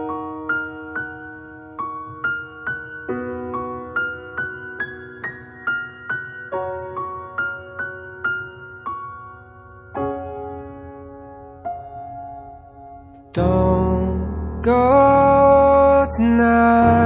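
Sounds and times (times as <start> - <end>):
soft sad piano music: 0.0 - 17.0.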